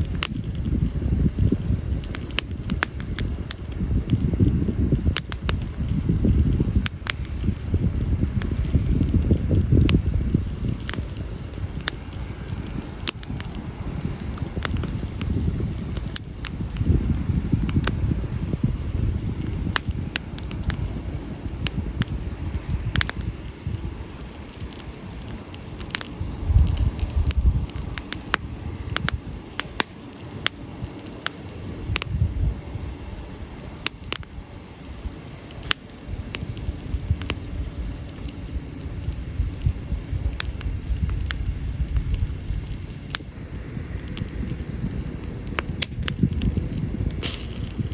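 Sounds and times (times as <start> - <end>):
firewood crackling and popping: 0.0 - 47.9
low rumble: 36.1 - 47.9.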